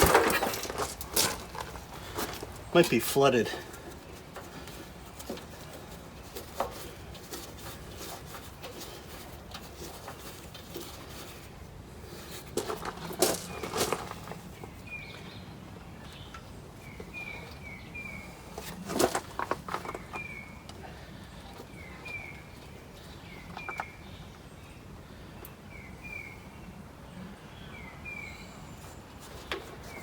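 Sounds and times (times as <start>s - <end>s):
metal parts clicking and clanking: 0.0s - 2.6s.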